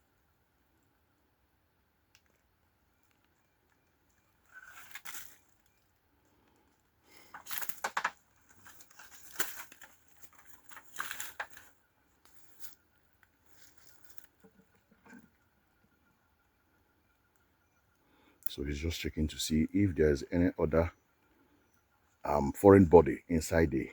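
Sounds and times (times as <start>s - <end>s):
rustling and scraping of wooden box: 7.2s - 12.8s.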